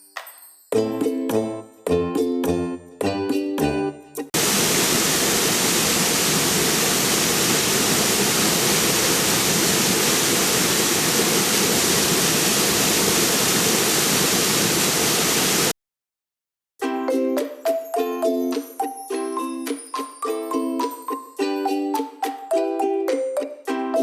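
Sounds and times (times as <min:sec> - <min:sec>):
chiming music: 0:00.0 - 0:03.0, 0:16.8 - 0:24.0
waterfall rushing: 0:04.4 - 0:15.7.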